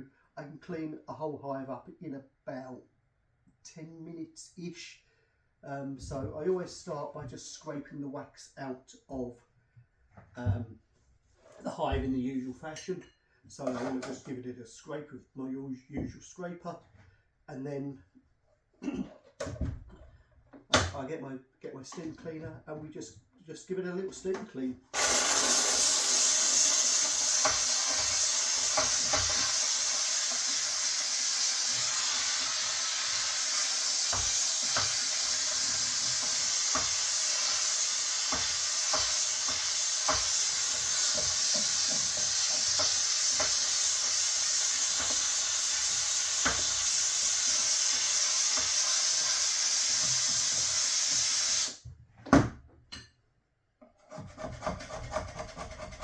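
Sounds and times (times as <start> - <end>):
steam cleaner hissing: 25.0 - 51.8.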